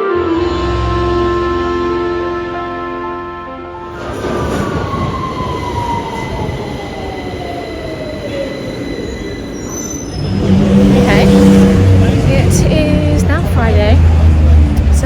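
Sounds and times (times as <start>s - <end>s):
vehicle rumble slowing down: 10.2s - 15.0s.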